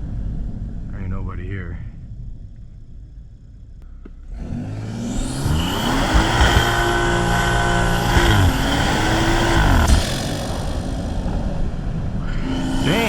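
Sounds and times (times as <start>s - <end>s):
car engine revving hard: 4.3s - 13.0s.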